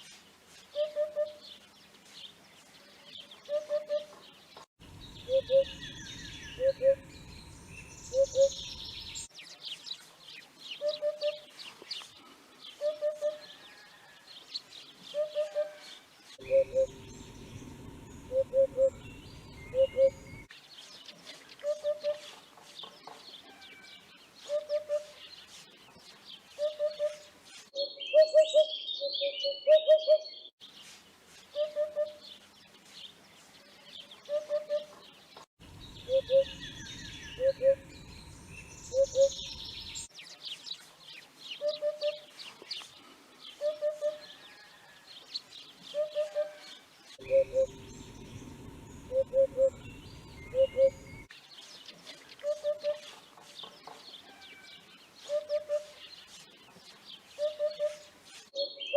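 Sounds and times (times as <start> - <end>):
small birds chirping: 0.0 - 13.5, 14.4 - 43.9, 45.2 - 58.9
bright twittering birdsong: 0.1 - 58.9
hoopoe low hooping call: 16.4 - 17.5, 47.2 - 51.1.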